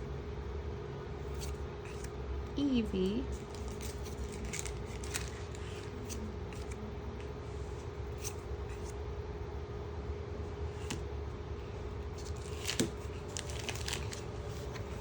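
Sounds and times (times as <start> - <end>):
steady low hum: 0.0 - 15.0
cards clicking and sliding: 1.2 - 2.1, 3.3 - 9.0, 10.7 - 11.1, 12.0 - 15.0.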